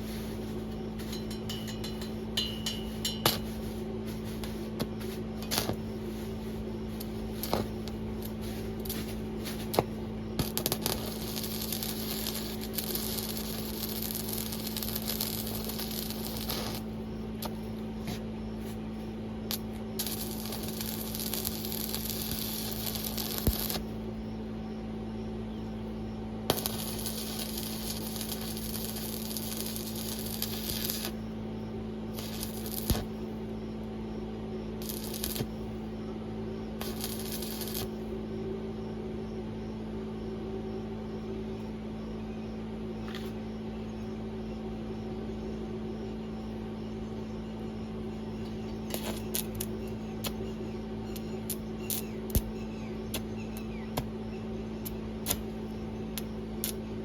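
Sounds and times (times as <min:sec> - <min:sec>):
welding arc crackling and hissing: 0:00.0 - 0:18.8, 0:19.5 - 0:24.0, 0:26.5 - 0:31.2, 0:32.1 - 0:33.3, 0:34.8 - 0:35.7, 0:36.8 - 0:38.1, 0:48.9 - 0:50.4, 0:51.1 - 0:54.1, 0:54.8 - 0:57.0
steady hum: 0:00.0 - 0:57.0.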